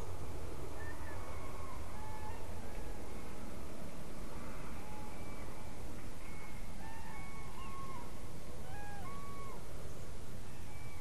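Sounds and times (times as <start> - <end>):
birds whistling calls: 6.2 - 9.6.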